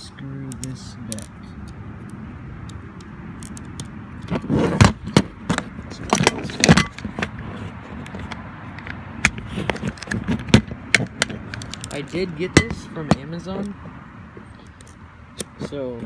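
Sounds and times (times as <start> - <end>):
pistol handling clicks and rattles: 0.5 - 3.9, 8.3 - 12.2, 14.6 - 15.7.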